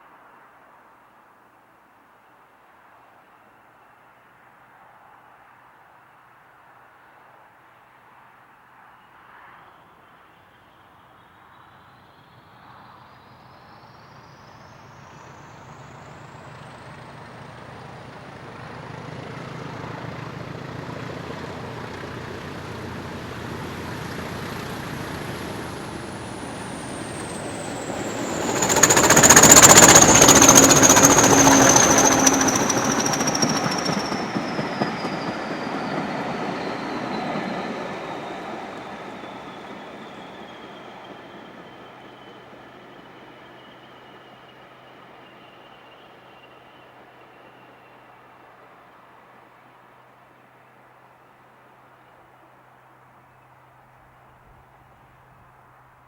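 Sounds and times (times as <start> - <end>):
diesel locomotive passing: 11.7 - 55.9
high whine: 21.9 - 41.1.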